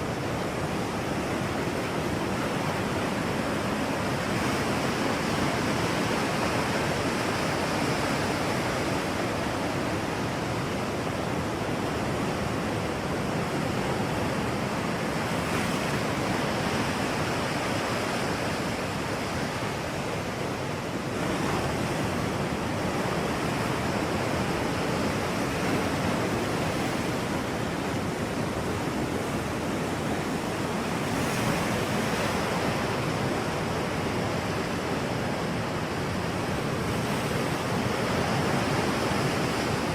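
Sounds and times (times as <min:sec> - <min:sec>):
steady rushing noise: 0:14.4 - 0:39.9.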